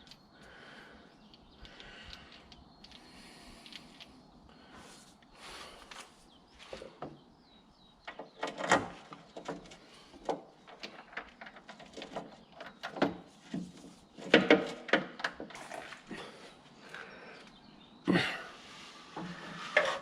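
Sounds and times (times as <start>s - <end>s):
hand tools clicking and scraping: 8.2s - 16.4s, 19.1s - 20.0s.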